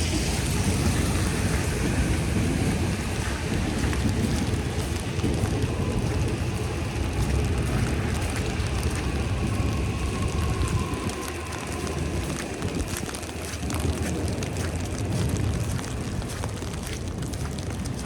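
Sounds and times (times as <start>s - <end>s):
low rumble: 0.0s - 18.0s
wet snow pattering: 0.0s - 18.0s.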